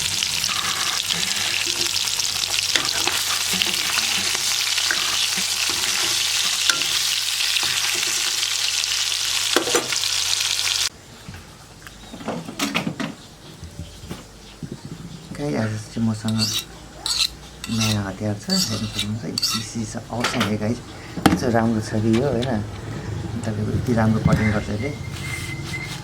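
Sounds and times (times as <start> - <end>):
fish sizzling in oil: 0.0 - 10.9
stirring clicks and scrapes: 16.3 - 19.7
utensils knocking: 16.3 - 20.6.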